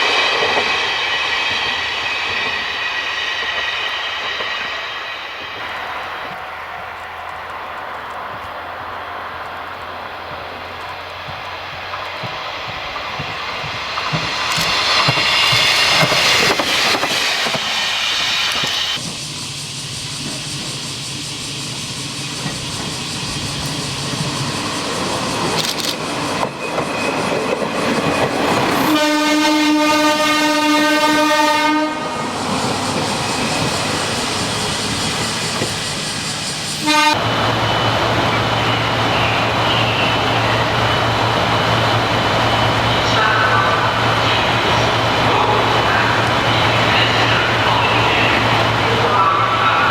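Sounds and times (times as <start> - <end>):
diesel railcar running: 0.0 - 49.9
train horn blast: 28.8 - 32.3, 36.8 - 37.3.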